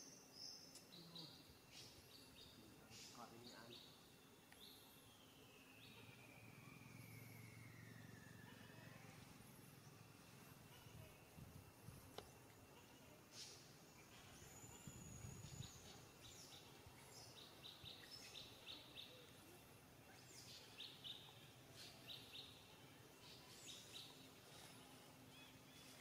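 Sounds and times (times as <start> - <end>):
faint bird chirps: 0.0 - 26.0
thin high whistle: 6.2 - 8.9.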